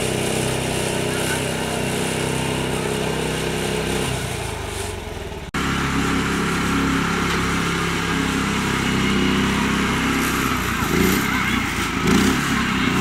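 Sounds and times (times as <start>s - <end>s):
mini tractor engine running: 0.0s - 13.0s.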